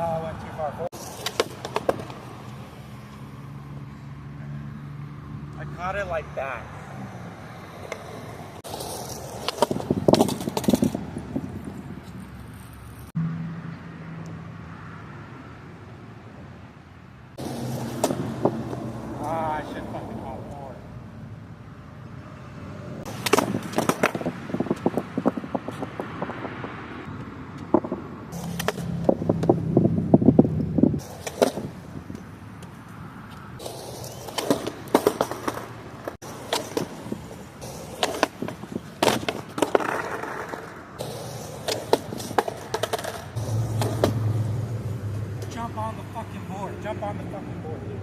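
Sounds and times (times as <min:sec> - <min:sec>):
skateboard wheels rolling: 0:00.0 - 0:04.1, 0:06.8 - 0:13.1, 0:17.4 - 0:20.8, 0:22.8 - 0:46.1
skateboard clacking on pavement: 0:00.9 - 0:02.6, 0:07.7 - 0:13.0, 0:17.4 - 0:19.6, 0:23.1 - 0:26.2, 0:27.6 - 0:29.5, 0:31.0 - 0:32.8, 0:33.6 - 0:44.2.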